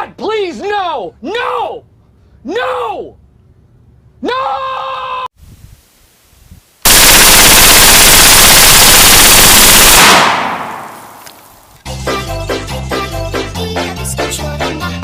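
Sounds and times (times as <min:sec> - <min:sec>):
loud distorted rapid-fire rattle: 0:06.9 - 0:10.8.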